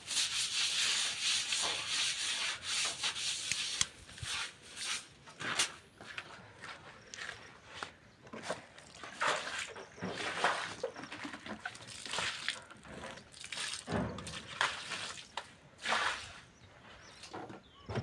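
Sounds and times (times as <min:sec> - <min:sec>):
water sloshing and splashing: 0:08.4 - 0:16.5.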